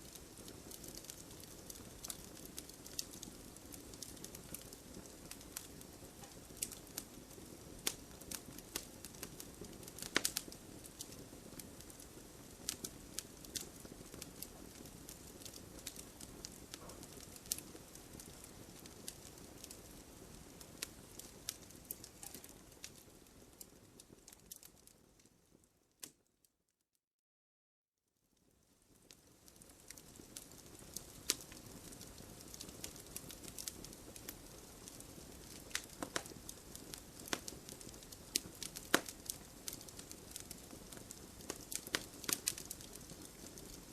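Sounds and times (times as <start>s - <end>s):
fire crackles and pops: 0.0s - 26.3s, 28.3s - 43.9s
fire flames rushing: 29.9s - 43.9s.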